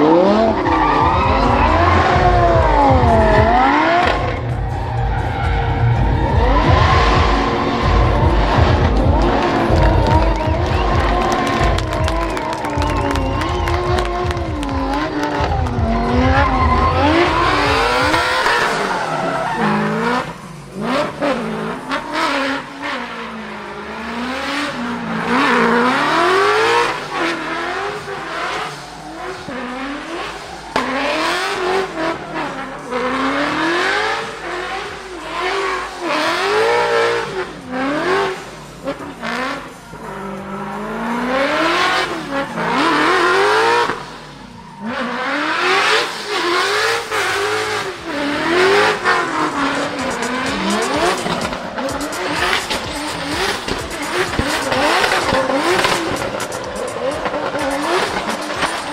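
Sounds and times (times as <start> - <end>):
car engine revving: 0.0 - 58.9
tyres squealing: 0.1 - 23.1.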